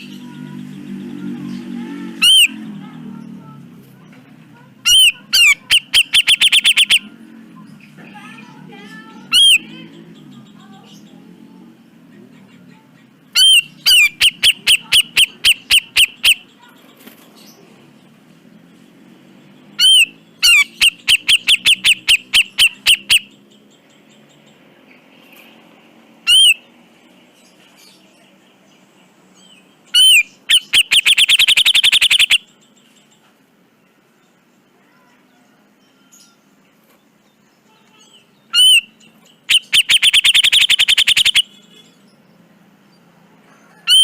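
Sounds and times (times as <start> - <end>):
bulbul sharp repeated calls: 2.1 - 2.9, 4.8 - 7.2, 9.2 - 9.9, 13.0 - 16.7, 19.8 - 23.4, 26.2 - 26.7, 29.9 - 32.6, 38.4 - 41.9, 43.7 - 44.0.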